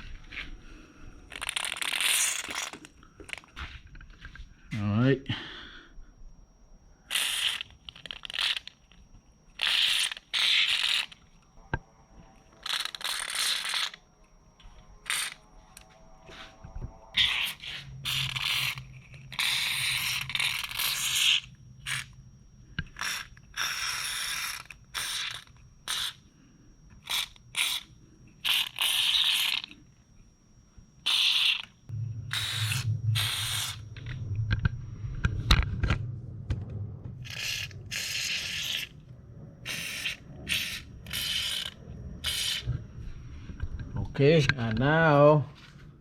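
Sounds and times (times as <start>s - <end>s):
aerosol spray hissing: 32.3s - 33.9s.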